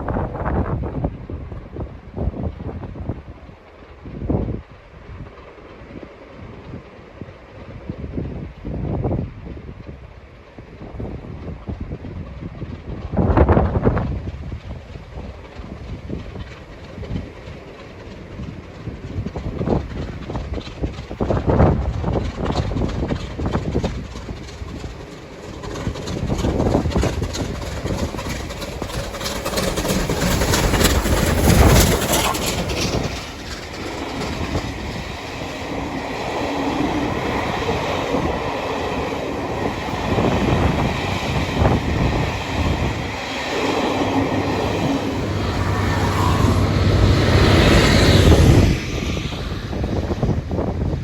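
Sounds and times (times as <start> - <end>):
steam locomotive passing: 0.0 - 51.0
carriage wheels clattering on rails: 14.5 - 36.4.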